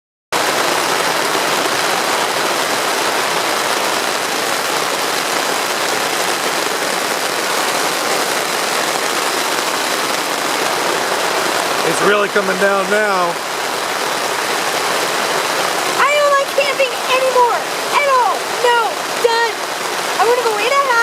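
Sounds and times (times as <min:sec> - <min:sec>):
heavy rain on tent fabric: 0:00.3 - 0:21.0.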